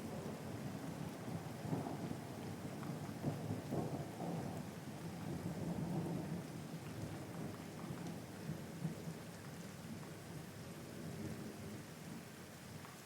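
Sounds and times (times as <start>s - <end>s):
steady rain: 0.0s - 13.0s
drip-like ticks: 2.7s - 3.8s, 6.8s - 8.2s, 12.8s - 13.0s.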